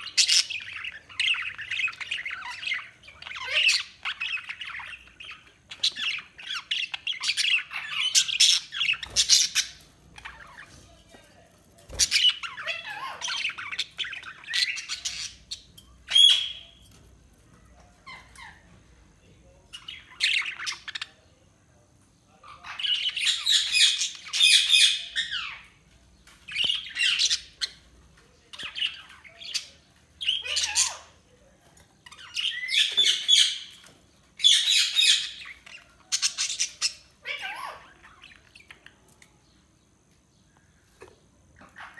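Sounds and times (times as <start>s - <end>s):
budgerigars chattering: 0.0s - 10.8s, 11.9s - 16.8s, 22.4s - 25.8s, 26.5s - 27.9s, 28.5s - 31.2s, 32.1s - 39.0s.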